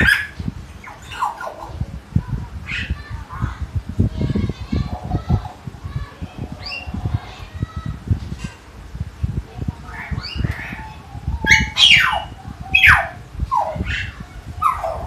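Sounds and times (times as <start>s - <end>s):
myna whistling calls: 6.5s - 7.0s, 9.9s - 15.0s.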